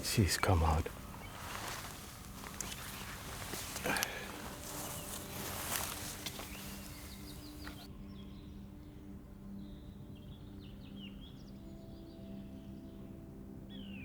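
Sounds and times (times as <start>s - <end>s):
rustling hiss: 0.0s - 7.9s
faint forest birdsong: 0.0s - 14.0s.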